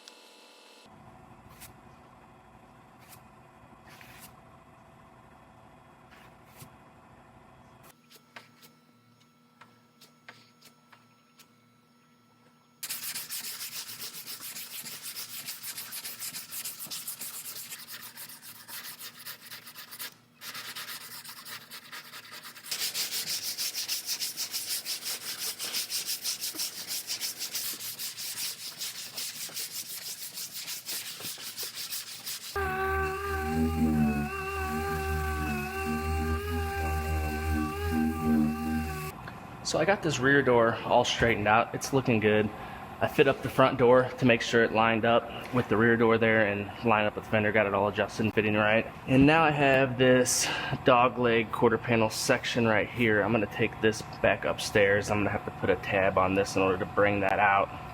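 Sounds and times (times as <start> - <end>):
sanding scraping strokes on metal: 12.8 - 39.1.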